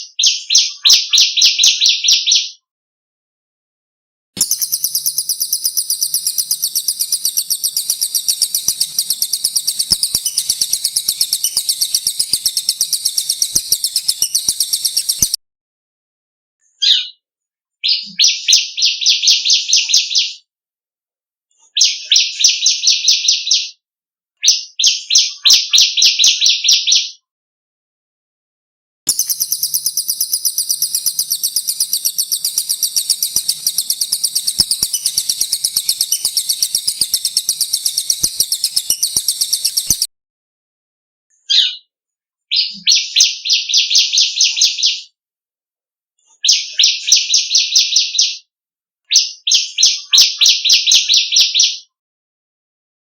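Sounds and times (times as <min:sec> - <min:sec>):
birdsong fast repeated notes: 0:04.4 - 0:15.4, 0:29.1 - 0:40.1.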